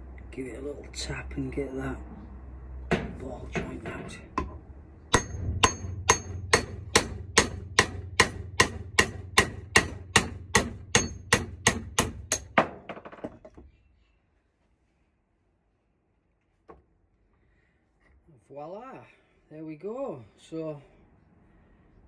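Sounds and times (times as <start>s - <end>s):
hammer tapping metal punch: 4.4s - 12.8s.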